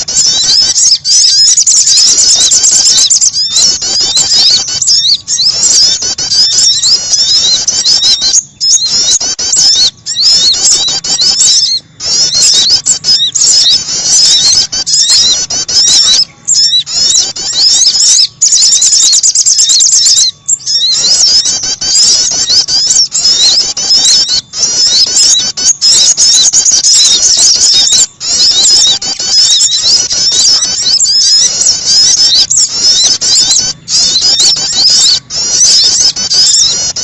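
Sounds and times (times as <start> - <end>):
songbirds chirping: 0.0 - 37.0.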